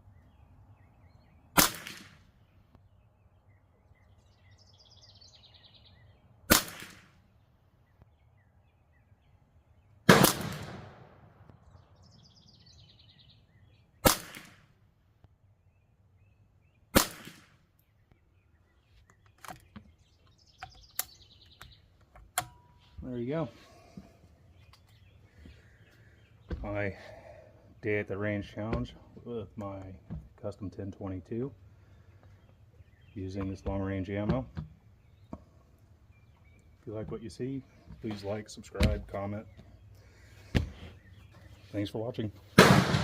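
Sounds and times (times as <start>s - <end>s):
birds chirping faintly: 0.0s - 10.1s, 11.0s - 42.6s
rifle shots: 1.6s - 2.2s, 6.5s - 7.2s, 10.1s - 11.3s, 14.0s - 14.7s, 16.9s - 17.6s, 42.6s - 43.0s.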